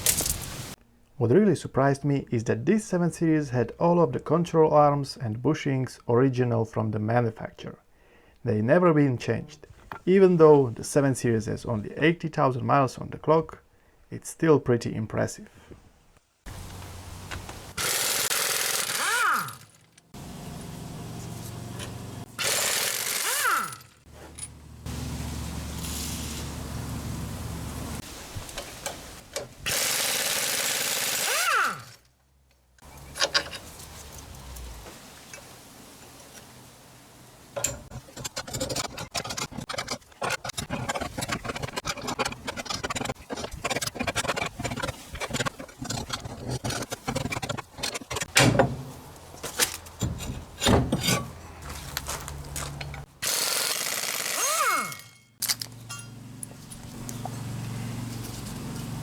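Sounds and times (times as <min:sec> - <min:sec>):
power tool whirring: 0:17.8 - 0:19.8, 0:22.2 - 0:24.0, 0:29.7 - 0:32.0, 0:53.2 - 0:55.2
metal tools clicking and rattling: 0:54.0 - 0:56.2.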